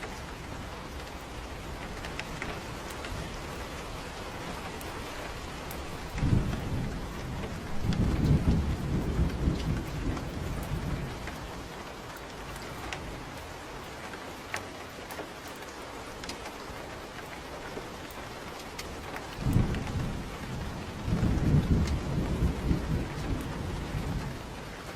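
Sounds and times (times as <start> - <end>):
thunder rumbling: 0.0 - 13.9, 17.6 - 24.9
steady rain falling: 0.0 - 24.9.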